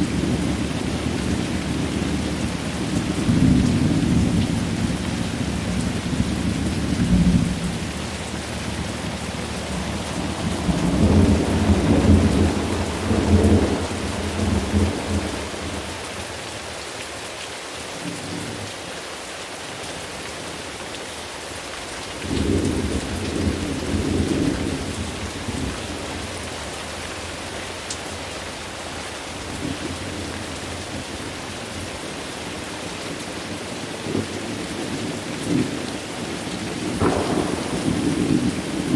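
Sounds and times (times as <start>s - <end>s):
thunder rumbling: 0.0s - 16.7s, 22.2s - 27.8s, 36.8s - 38.9s
steady rain falling: 0.0s - 38.9s.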